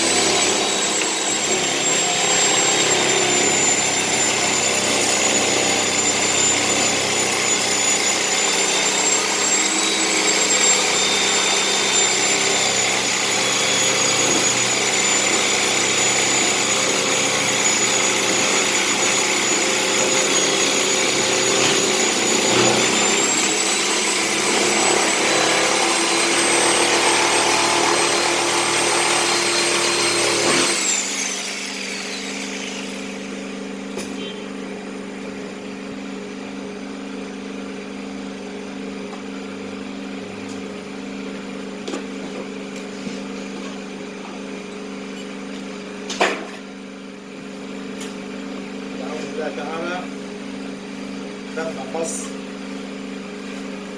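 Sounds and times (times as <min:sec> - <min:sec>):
power tool cutting metal: 0:00.0 - 0:34.3.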